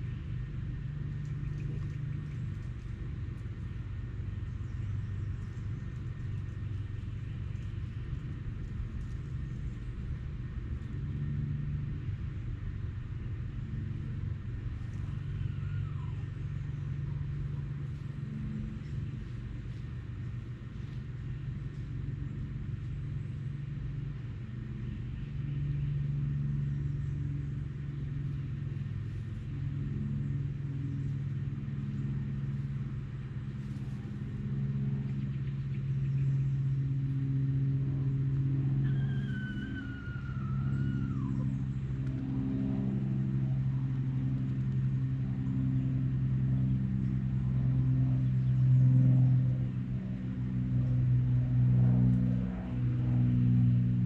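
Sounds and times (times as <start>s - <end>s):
low engine-like hum: 0.0s - 54.0s
drawn-out falling call: 15.4s - 16.3s, 38.8s - 41.6s.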